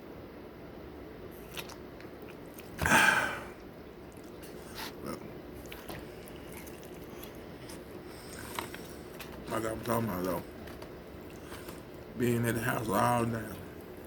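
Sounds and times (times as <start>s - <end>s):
chewing food: 1.3s - 2.9s, 3.6s - 12.2s
wet mouth clicks: 1.4s - 2.8s.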